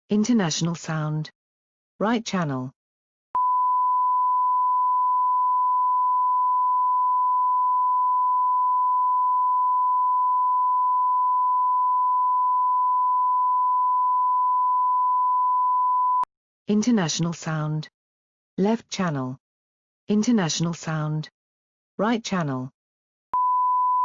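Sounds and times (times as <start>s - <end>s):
steady sine-wave line-up tone: 3.4s - 16.2s.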